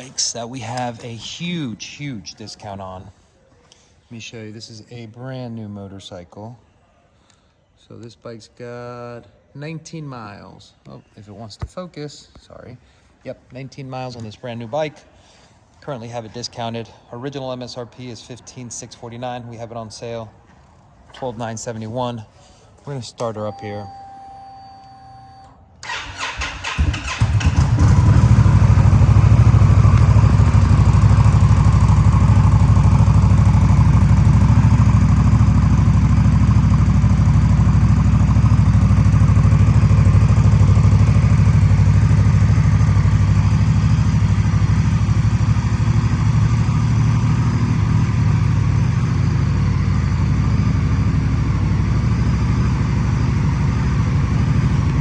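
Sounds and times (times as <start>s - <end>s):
motorcycle engine idling: 27.0s - 55.0s.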